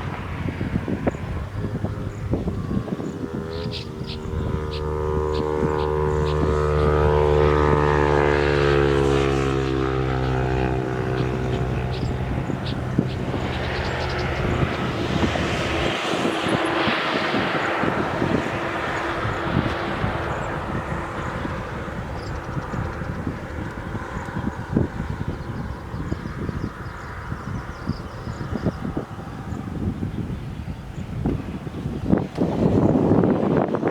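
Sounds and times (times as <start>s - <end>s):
broad rushing noise: 0.0s - 25.8s
engine droning past: 0.0s - 33.6s
small birds chirping: 2.0s - 7.4s, 10.2s - 17.0s, 18.4s - 29.7s.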